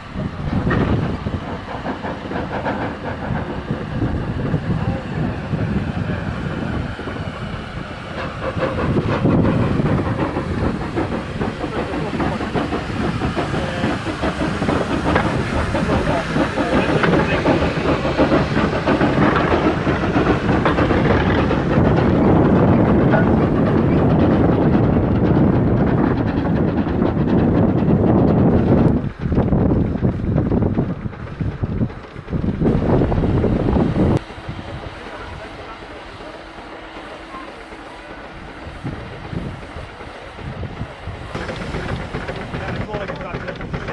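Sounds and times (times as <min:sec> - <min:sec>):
steam hissing: 0:00.0 - 0:43.9
steam locomotive running: 0:00.0 - 0:43.9.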